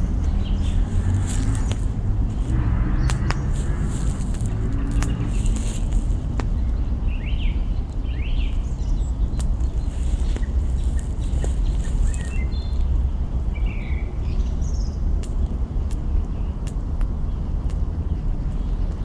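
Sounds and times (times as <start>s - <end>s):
burning branches popping: 0.0s - 6.6s, 9.4s - 13.0s
campfire crackling: 0.0s - 6.6s
low steady rumble: 0.0s - 19.0s
small birds chirping: 0.0s - 19.0s.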